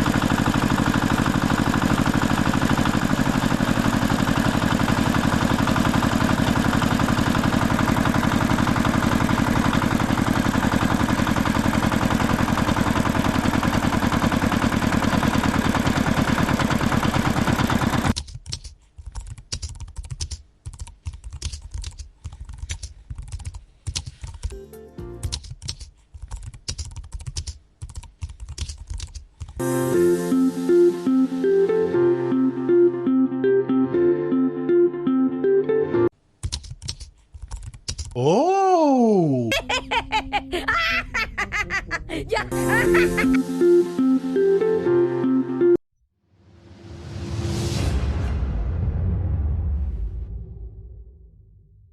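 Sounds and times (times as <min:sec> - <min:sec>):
music: 0:24.5 - 0:25.4, 0:29.6 - 0:36.1, 0:42.5 - 0:45.8.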